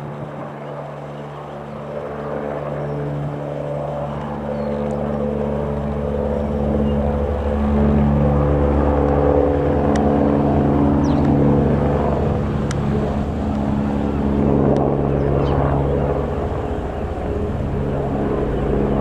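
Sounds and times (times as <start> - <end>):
engine running with low hum: 2.8 - 19.0
faint clicks: 12.3 - 13.8.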